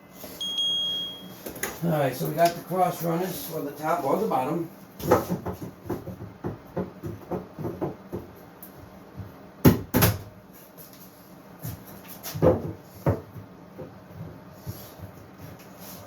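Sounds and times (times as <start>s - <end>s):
wooden boards knocking together: 5.0s - 8.4s, 12.2s - 14.0s.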